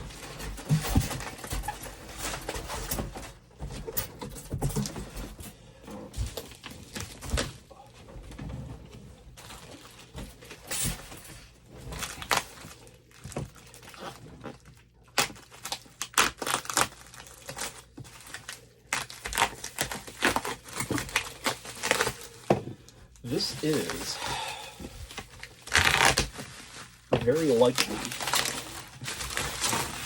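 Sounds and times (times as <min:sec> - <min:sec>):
packing material rustling: 0:09.3 - 0:30.0.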